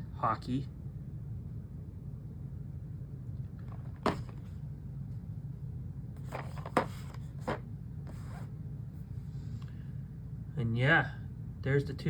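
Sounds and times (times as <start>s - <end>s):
steady low hum: 0.0s - 12.0s
plastic figures scraping: 6.2s - 8.5s.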